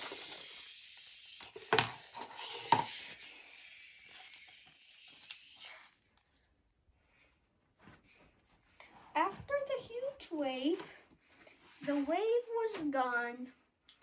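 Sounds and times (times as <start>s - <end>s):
hiss: 0.0s - 5.9s.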